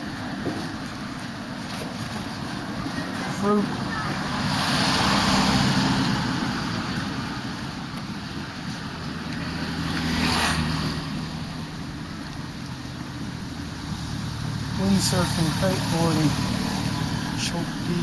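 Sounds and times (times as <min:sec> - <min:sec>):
roadside traffic noise: 0:00.0 - 0:18.0
vehicles driving past: 0:00.0 - 0:18.0.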